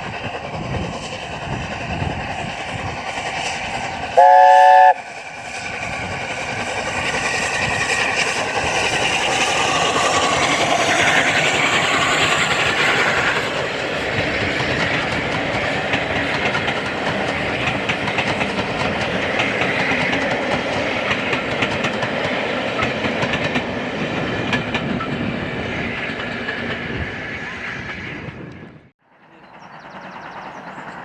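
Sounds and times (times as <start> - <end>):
train wheels clicking over rail joints: 5.0 - 27.1.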